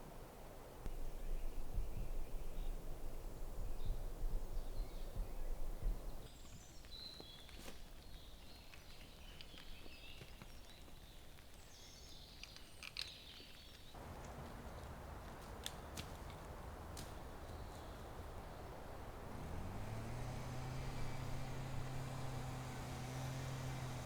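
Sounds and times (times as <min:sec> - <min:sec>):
small birds chirping: 0:00.7 - 0:24.0
light clicks: 0:12.4 - 0:18.3.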